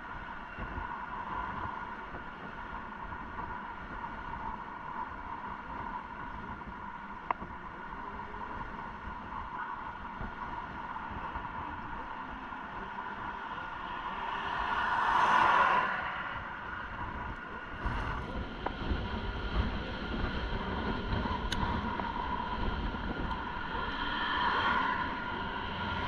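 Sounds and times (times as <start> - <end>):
road noise: 0.0 - 26.0
steady motor whine: 0.0 - 26.0
wind buffeting microphone: 0.0 - 26.0
vehicle passing with whoosh: 14.1 - 17.0.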